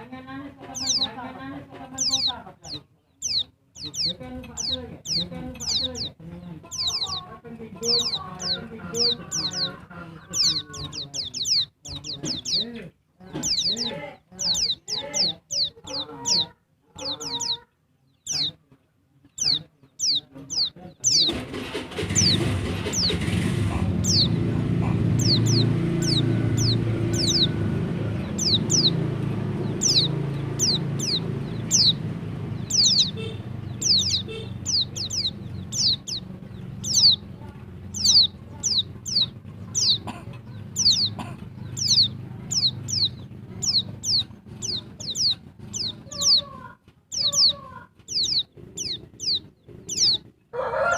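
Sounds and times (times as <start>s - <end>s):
low rumbling background noise: 0.0s - 50.6s
bird calling high notes: 25.0s - 40.0s.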